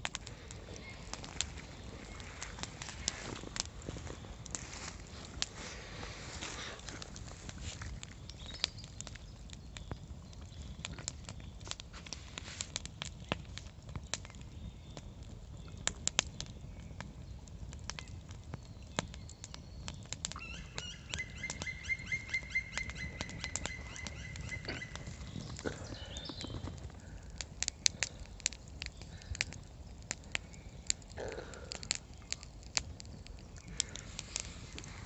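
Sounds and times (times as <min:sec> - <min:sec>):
campfire crackling: 0:00.0 - 0:35.0
bird singing high trill: 0:20.4 - 0:26.6.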